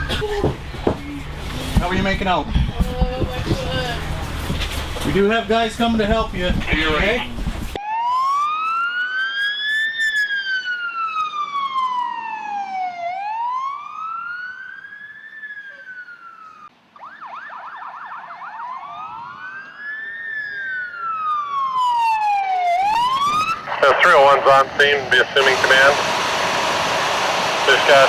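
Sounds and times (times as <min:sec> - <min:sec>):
emergency siren wailing: 0:07.8 - 0:28.0.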